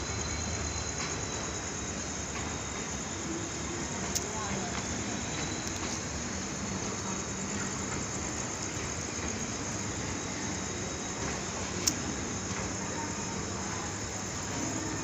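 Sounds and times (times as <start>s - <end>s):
train rumbling and hissing: 0.0s - 15.0s.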